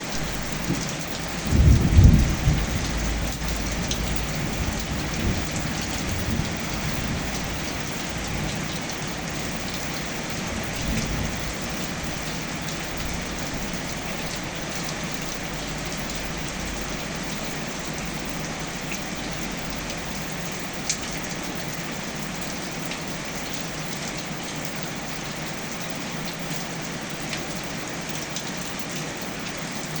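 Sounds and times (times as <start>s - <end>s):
thunder rumbling: 0.0s - 18.6s
rain pattering: 0.0s - 30.0s.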